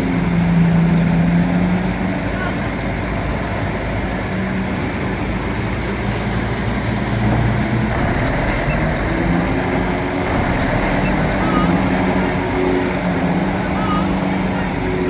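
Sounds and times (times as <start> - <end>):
bulldozer diesel engine running: 5.6 - 15.0.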